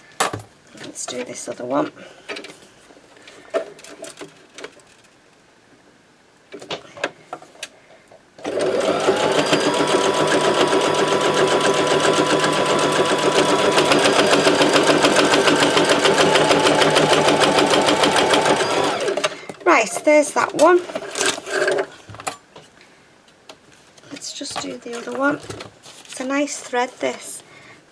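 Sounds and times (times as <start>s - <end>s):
electric sewing machine running: 8.4s - 19.4s.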